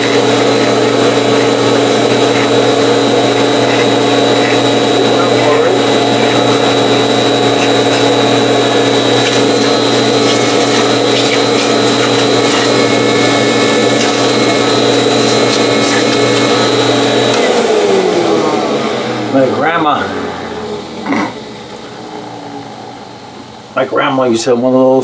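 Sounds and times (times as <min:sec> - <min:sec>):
vacuum cleaner motor whining: 0:00.0 - 0:24.4.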